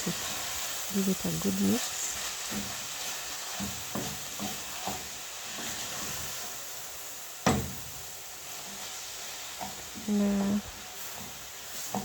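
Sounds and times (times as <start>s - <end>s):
meat and cabbage sizzling in pan: 0.0s - 12.0s
utensil scraping and tapping pan: 2.4s - 6.3s, 11.1s - 12.0s
knock against pan: 7.4s - 7.9s.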